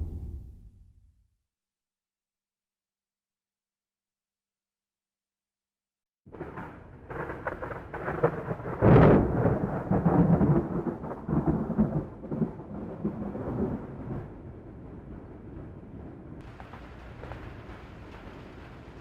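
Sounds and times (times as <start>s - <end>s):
crackling thunder rumble: 6.3s - 19.0s.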